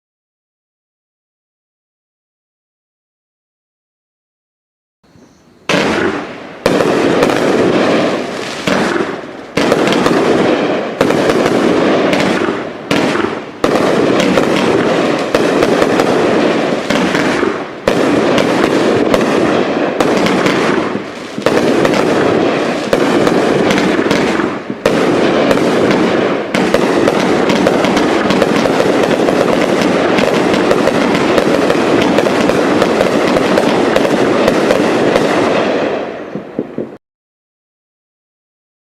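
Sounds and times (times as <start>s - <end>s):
fireworks firing rapid shots: 5.7s - 37.0s.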